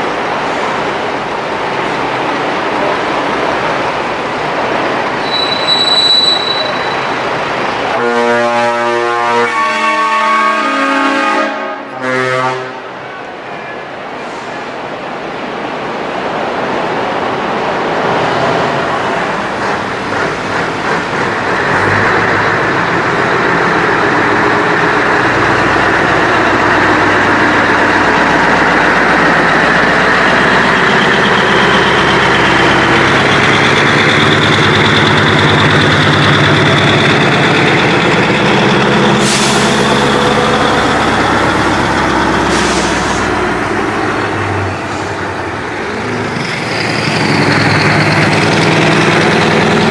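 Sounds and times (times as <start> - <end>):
heavy diesel truck engine: 16.9 - 49.9
short air hisses: 39.2 - 39.9, 42.4 - 43.4.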